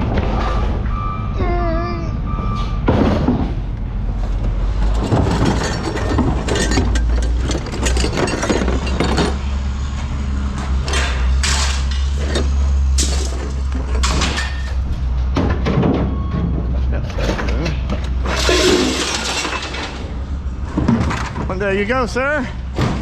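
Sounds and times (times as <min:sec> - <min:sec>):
scrap metal clanking: 0:04.5 - 0:09.6, 0:10.6 - 0:21.6.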